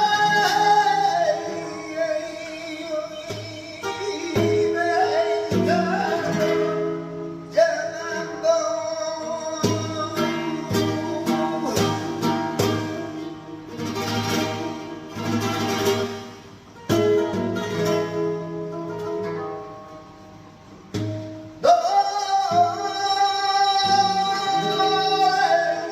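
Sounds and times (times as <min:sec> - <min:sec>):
person singing: 0:00.0 - 0:13.4, 0:21.6 - 0:25.9
flamenco guitar strumming: 0:00.0 - 0:25.9.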